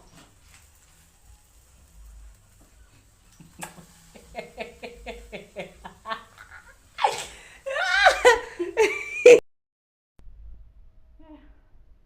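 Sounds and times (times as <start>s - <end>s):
person giggling: 3.4s - 9.4s.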